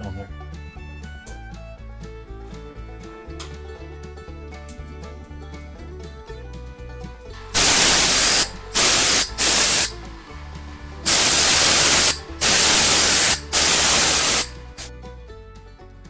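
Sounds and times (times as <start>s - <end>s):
air blow gun hissing: 7.4s - 10.1s, 11.0s - 14.9s.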